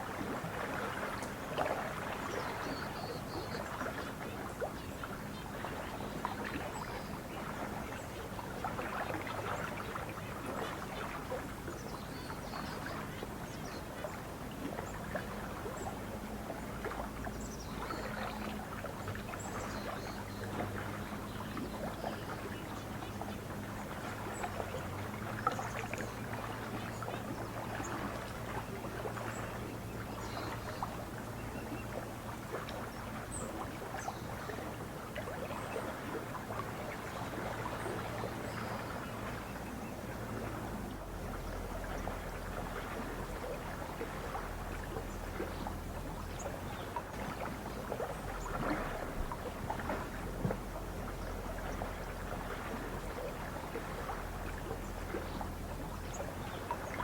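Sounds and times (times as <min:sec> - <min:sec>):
lake water lapping and splashing: 0:00.0 - 0:57.0
low steady hum: 0:00.0 - 0:57.0.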